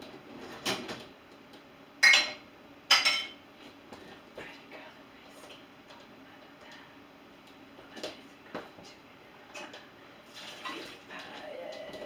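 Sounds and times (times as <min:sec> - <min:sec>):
dishes clinking and knocking: 0:02.0 - 0:03.4.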